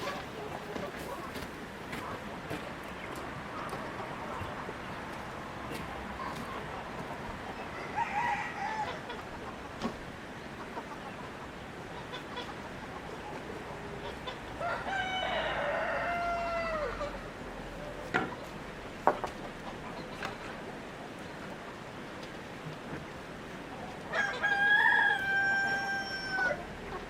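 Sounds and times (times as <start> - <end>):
rooster crowing: 7.7 - 9.1, 14.6 - 17.3, 24.1 - 26.7
chicken call: 24.1 - 26.7.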